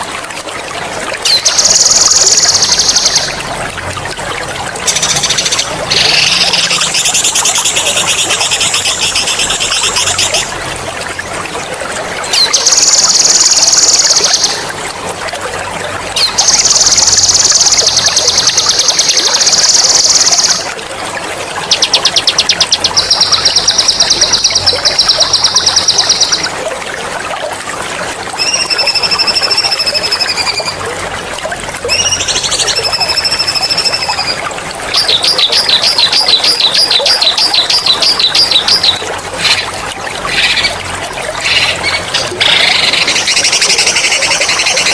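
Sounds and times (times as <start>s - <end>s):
running water trickling: 0.0s - 44.9s.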